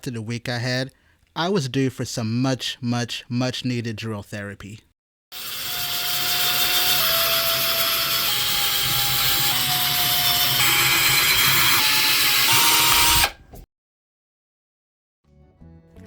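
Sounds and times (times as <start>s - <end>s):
electric drill boring: 5.3s - 13.4s.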